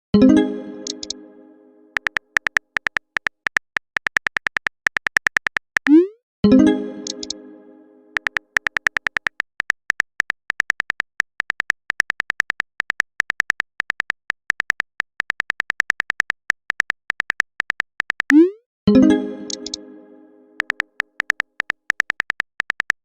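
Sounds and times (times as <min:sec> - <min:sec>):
phone keyboard typing clicks: 0:00.8 - 0:01.2, 0:02.0 - 0:06.0, 0:07.0 - 0:07.4, 0:08.2 - 0:18.4, 0:19.5 - 0:19.8, 0:20.6 - 0:23.0
message chime: 0:05.9 - 0:08.2.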